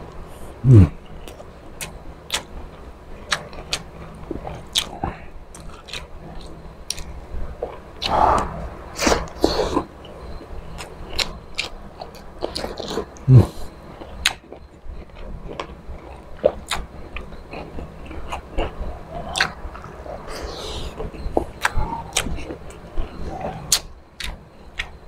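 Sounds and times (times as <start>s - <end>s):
man chewing food: 0.0s - 25.0s.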